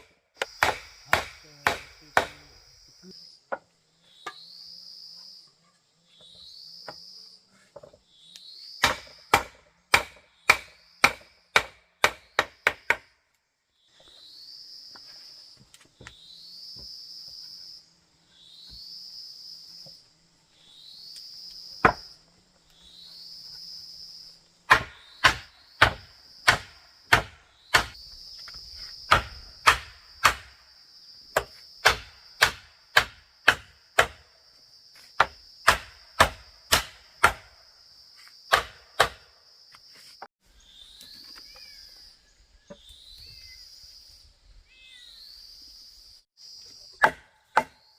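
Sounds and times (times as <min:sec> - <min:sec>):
hand tool striking wood: 0:00.0 - 0:02.5, 0:08.8 - 0:13.1, 0:21.8 - 0:22.1, 0:24.7 - 0:30.5, 0:31.3 - 0:34.3, 0:35.0 - 0:37.6, 0:38.5 - 0:39.2, 0:47.0 - 0:47.8
insect buzzing call: 0:00.4 - 0:11.6, 0:13.7 - 0:47.9.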